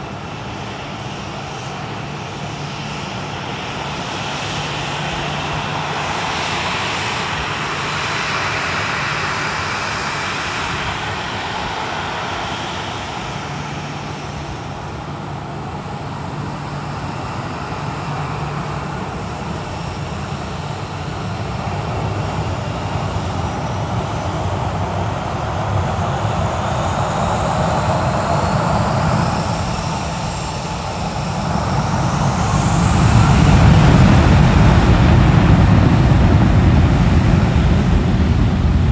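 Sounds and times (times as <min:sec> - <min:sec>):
high engine whine: 0:00.0 - 0:38.9
jet engines roaring: 0:00.0 - 0:38.9
low rumble: 0:30.4 - 0:38.9.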